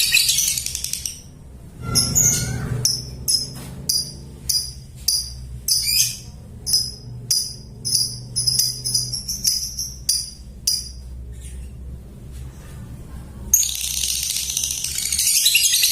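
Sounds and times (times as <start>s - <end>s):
lovebird chattering: 0.0s - 1.3s, 13.6s - 15.9s.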